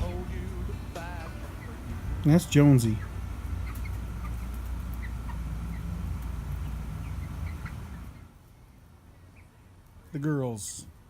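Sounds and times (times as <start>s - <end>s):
low steady rumble: 0.0s - 10.1s
hens clucking softly: 2.9s - 8.2s.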